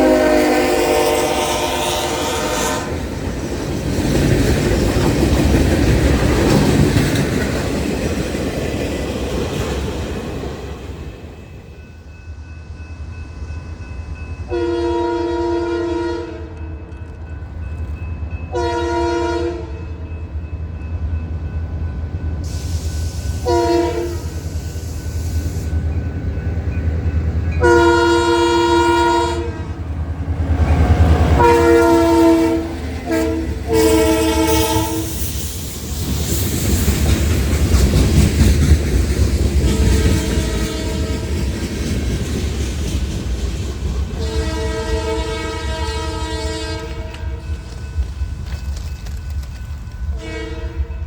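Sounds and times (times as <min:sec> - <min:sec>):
train horn blasts: 0:00.0 - 0:03.1, 0:14.5 - 0:16.8, 0:18.5 - 0:20.0, 0:22.4 - 0:24.5, 0:27.6 - 0:29.9, 0:30.5 - 0:35.2, 0:39.6 - 0:41.4, 0:44.2 - 0:47.6, 0:50.1 - 0:51.0
train rumbling: 0:00.0 - 0:51.0
train rushing past: 0:00.0 - 0:51.0.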